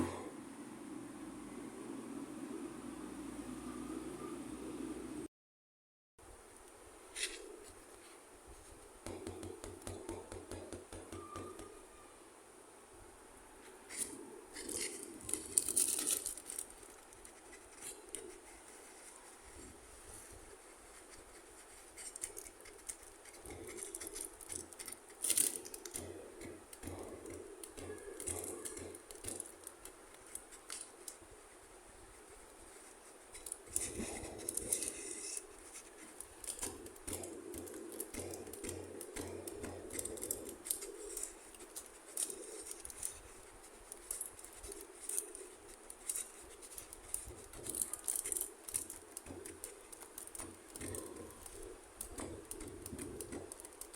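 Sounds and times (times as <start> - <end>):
soft rustling: 13.6 - 53.9
plastic toy pieces clicking: 14.6 - 17.0, 22.0 - 31.2, 33.4 - 35.5, 36.1 - 53.9.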